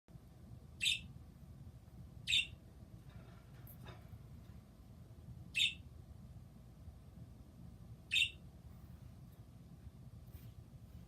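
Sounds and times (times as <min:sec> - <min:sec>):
bird calling: 0:02.3 - 0:02.6, 0:05.5 - 0:05.8, 0:08.1 - 0:08.4.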